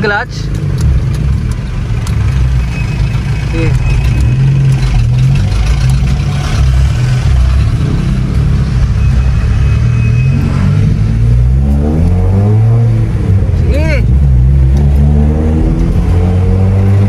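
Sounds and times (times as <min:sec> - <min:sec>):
car engine from inside cabin: 0:00.0 - 0:17.0.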